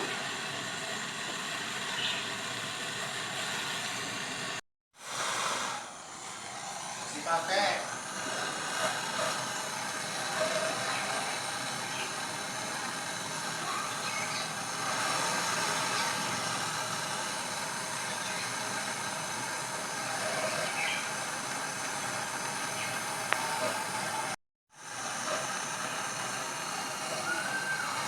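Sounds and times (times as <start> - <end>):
gas hissing: 0.0 - 28.0
faint voices: 6.8 - 24.4, 25.2 - 28.0.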